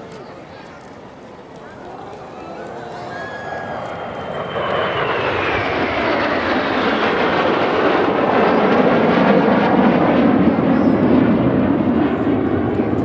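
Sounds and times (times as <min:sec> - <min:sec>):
jet turbofan roar: 0:02.8 - 0:13.0
high jet whine: 0:03.1 - 0:13.0.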